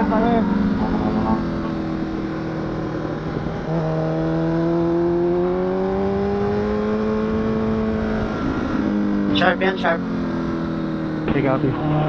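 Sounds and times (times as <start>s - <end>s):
steady rushing noise: 0.0s - 5.1s
motorcycle engine revving: 0.0s - 12.0s.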